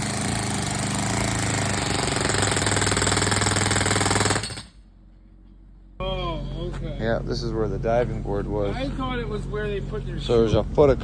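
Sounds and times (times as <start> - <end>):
jackhammer hammering concrete: 0.0 - 4.8.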